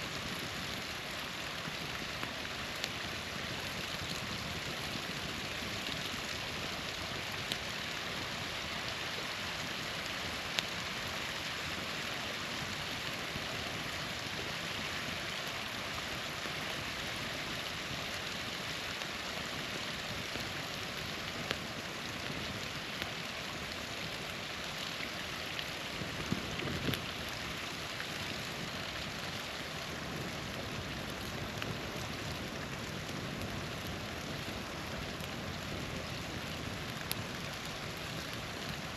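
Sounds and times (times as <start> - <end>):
campfire popping: 0.0 - 38.9
small waterfall rushing: 0.0 - 38.9.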